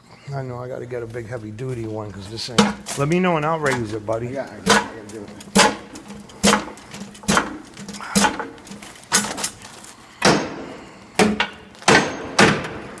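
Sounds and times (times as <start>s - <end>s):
hammer striking steel: 2.6s - 2.9s, 4.6s - 9.4s, 10.2s - 13.0s.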